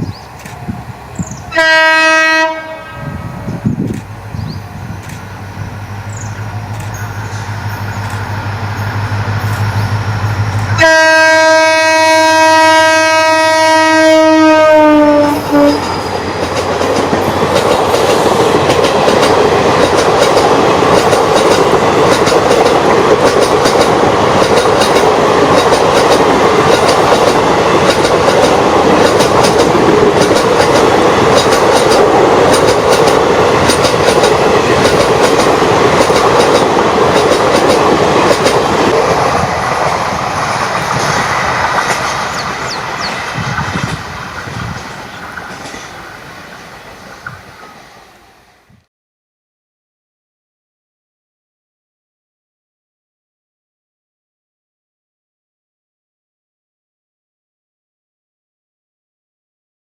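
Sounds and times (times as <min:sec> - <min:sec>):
locomotive engine hum: 0:00.0 - 0:11.4
train horn blast: 0:01.5 - 0:03.4, 0:09.5 - 0:16.1
wheels clacking over rail joints: 0:15.8 - 0:46.0.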